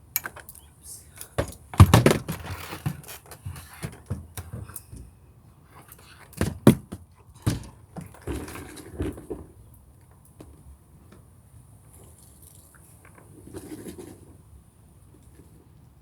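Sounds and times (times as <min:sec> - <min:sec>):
handling knocks and clicks: 0:00.1 - 0:00.6, 0:01.2 - 0:05.2, 0:05.8 - 0:08.5.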